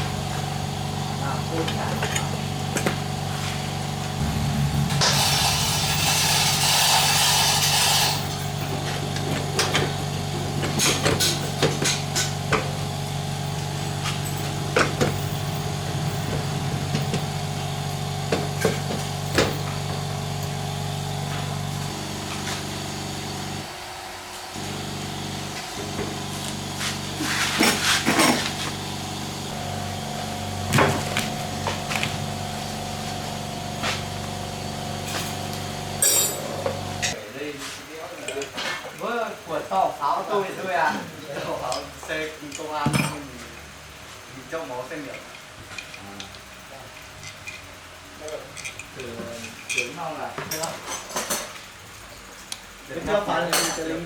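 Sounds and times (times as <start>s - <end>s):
droning hum: 3.4s - 8.7s.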